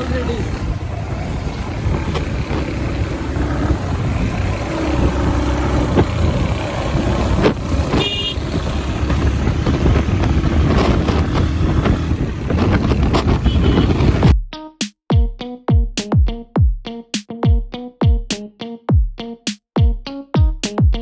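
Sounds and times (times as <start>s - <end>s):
motorcycle engine rumble: 0.0s - 14.3s
road and wind noise: 0.0s - 14.3s
vehicle horn beeping: 7.8s - 9.2s, 13.2s - 14.3s.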